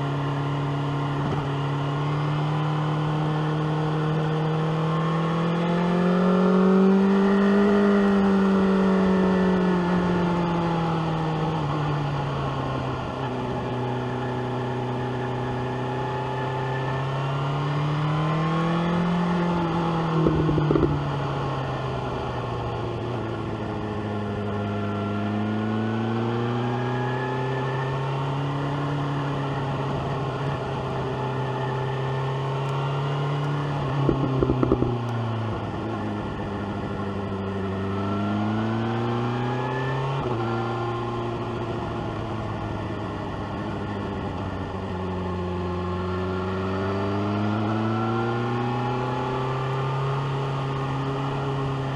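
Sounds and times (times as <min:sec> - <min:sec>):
motorcycle engine revving: 0:00.0 - 0:51.9
exhaust crackling pops: 0:20.2 - 0:21.0, 0:34.0 - 0:35.1.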